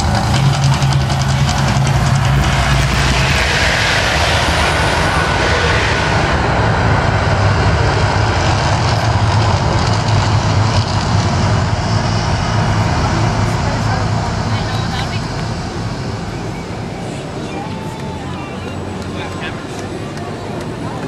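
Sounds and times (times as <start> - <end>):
volcano eruption effect roar: 0.0 - 16.7.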